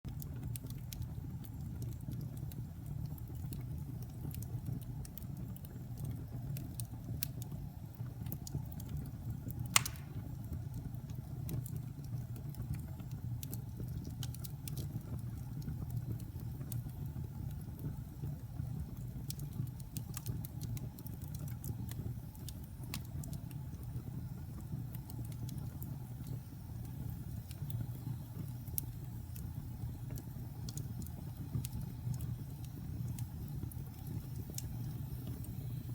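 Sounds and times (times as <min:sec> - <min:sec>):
fire low rumble: 0:00.1 - 0:35.9
wood fire crackling: 0:00.1 - 0:35.9
loud pop of fire: 0:09.7 - 0:10.4.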